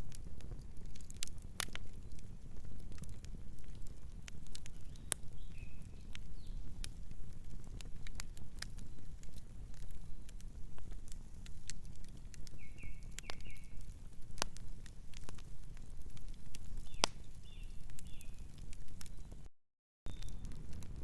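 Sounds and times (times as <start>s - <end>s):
wood fire crackling: 0.0s - 19.5s, 20.1s - 21.0s
bird chirping: 12.6s - 13.8s, 20.1s - 20.4s.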